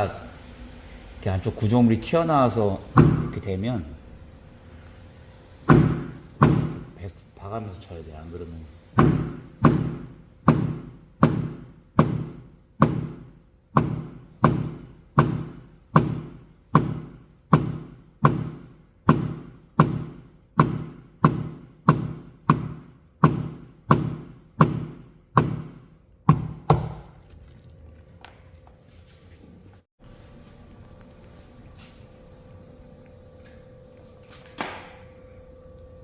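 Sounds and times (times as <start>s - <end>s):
hammer tapping on metal hood: 5.7s - 6.8s, 9.0s - 27.1s.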